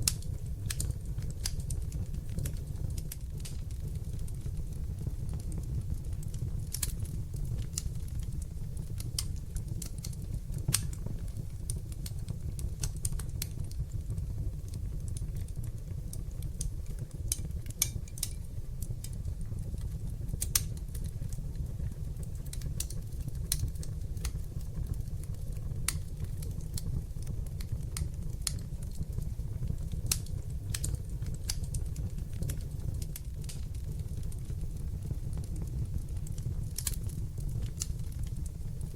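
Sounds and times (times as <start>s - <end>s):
sharp pops of fire: 0.0s - 13.9s, 20.3s - 21.1s, 22.4s - 38.5s
low rumble of flames: 0.0s - 38.9s
wood fire crackling: 0.0s - 38.9s.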